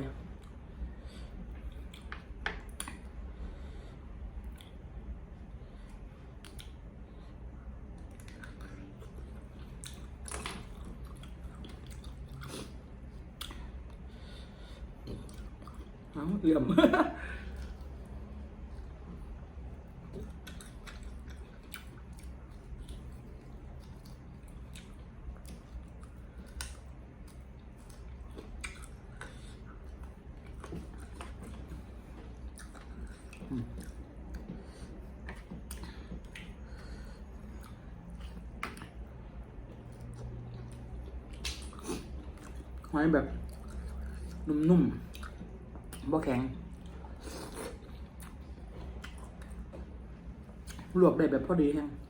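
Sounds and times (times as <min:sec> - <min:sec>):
person chewing food: 0:00.0 - 0:16.2, 0:17.2 - 0:46.1, 0:46.7 - 0:50.9
wet mouth clicks and smacks: 0:06.4 - 0:06.8, 0:38.1 - 0:39.0, 0:40.0 - 0:42.6.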